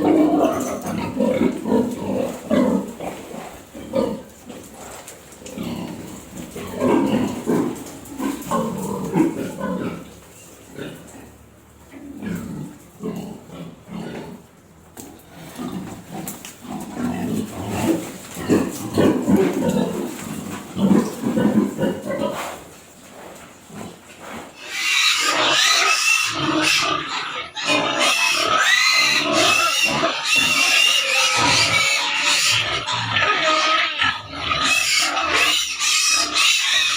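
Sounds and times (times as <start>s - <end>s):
pigs squealing: 0.0s - 14.3s, 23.8s - 36.9s
pigs grunting: 0.0s - 36.9s.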